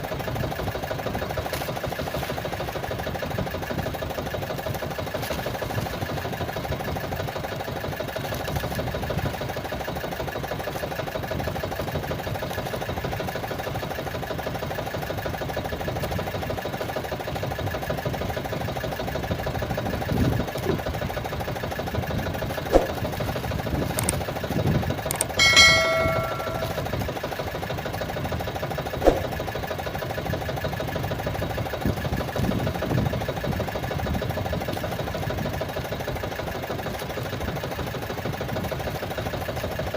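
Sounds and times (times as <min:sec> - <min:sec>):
sharp knocks: 0:25.1 - 0:26.9
brief ringing tone: 0:25.1 - 0:27.0.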